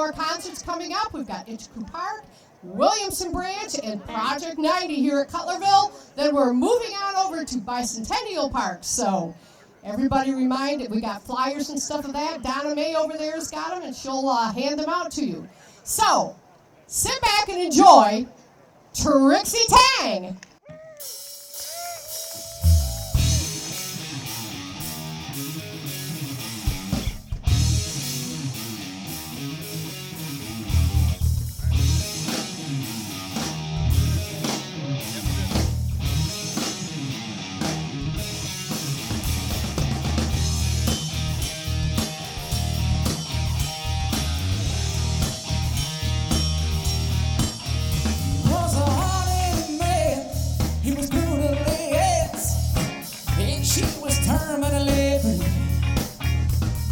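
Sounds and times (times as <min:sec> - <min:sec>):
drum kit: 0:20.7 - 0:56.9
electric guitars: 0:21.0 - 0:56.9
bass guitar: 0:22.5 - 0:56.9
person singing: 0:48.4 - 0:55.8.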